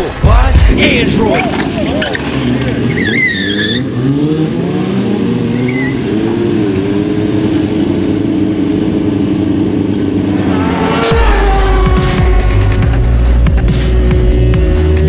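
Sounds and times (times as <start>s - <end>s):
music with heavy bass beat: 0.0s - 2.5s, 11.0s - 15.0s
motorcycle engine revving: 0.0s - 15.0s.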